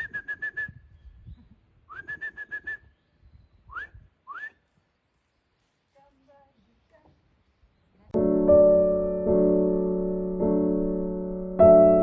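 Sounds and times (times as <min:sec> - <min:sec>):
bird whistling: 0:00.0 - 0:04.7.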